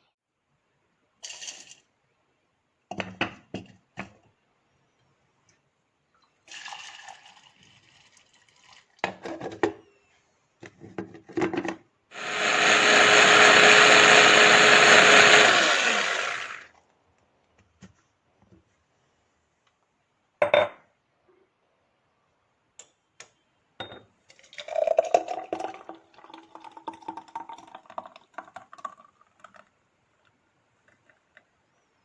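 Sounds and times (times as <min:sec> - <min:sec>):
small appliance motor running: 0:12.1 - 0:16.7.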